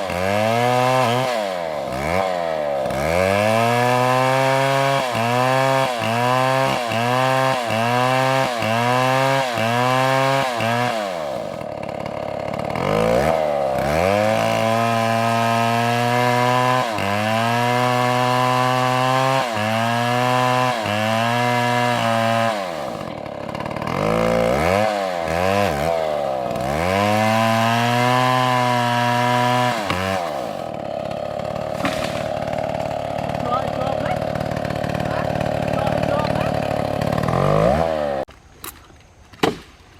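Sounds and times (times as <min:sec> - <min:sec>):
chainsaw revving and idling: 0:00.0 - 0:38.3.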